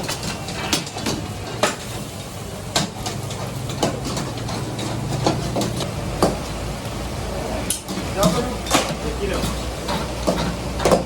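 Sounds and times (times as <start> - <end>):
knocks and clanks: 2.7 - 6.6, 7.7 - 11.0.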